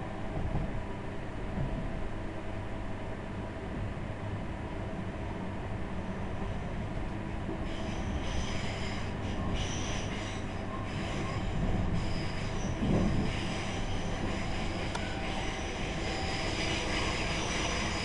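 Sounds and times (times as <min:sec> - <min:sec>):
rumble of train wheels on rails: 0:00.0 - 0:18.0
high thin wheel squeals: 0:07.6 - 0:18.0.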